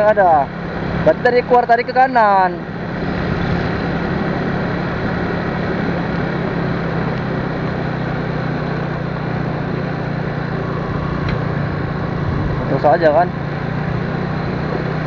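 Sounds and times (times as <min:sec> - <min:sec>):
road and wind noise: 0:00.0 - 0:15.0
vehicle engine hum: 0:00.0 - 0:15.0.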